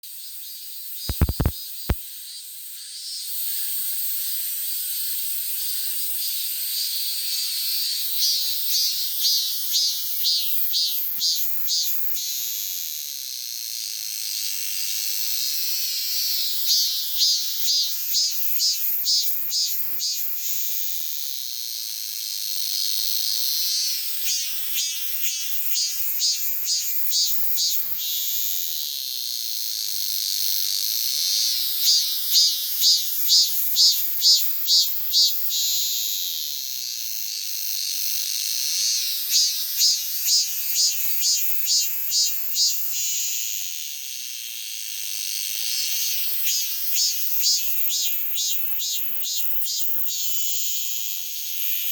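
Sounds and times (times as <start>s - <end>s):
cicadas buzzing: 1.1s - 1.5s, 31.3s - 37.8s, 38.8s - 43.6s, 45.8s - 51.8s
sharp knocks: 1.1s - 1.5s.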